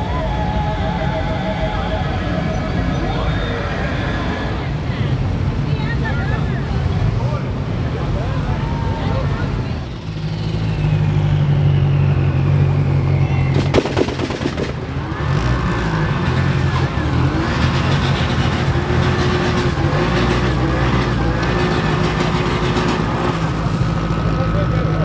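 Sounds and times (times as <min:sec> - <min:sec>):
car engines rumbling in traffic: 0:00.0 - 0:25.0
brief clatter: 0:13.5 - 0:15.1.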